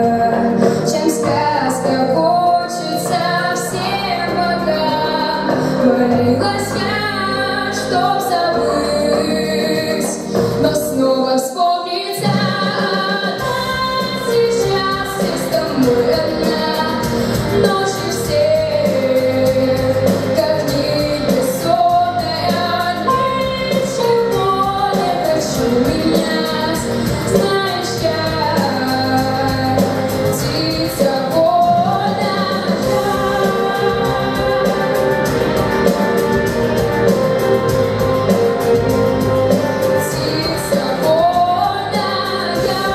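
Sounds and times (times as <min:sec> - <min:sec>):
girl singing: 0:00.0 - 0:29.8, 0:30.4 - 0:35.0, 0:40.1 - 0:42.9
musical accompaniment: 0:00.0 - 0:42.9.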